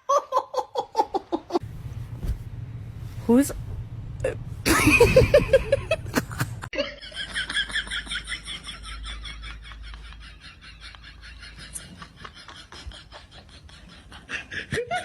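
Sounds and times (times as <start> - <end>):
person laughing in pulses: 4.6 - 7.0.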